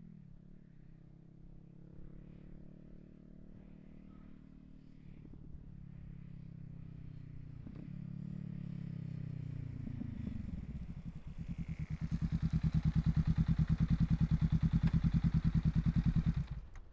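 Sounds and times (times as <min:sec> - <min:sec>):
motorcycle engine idling loudly: 0:09.7 - 0:16.7.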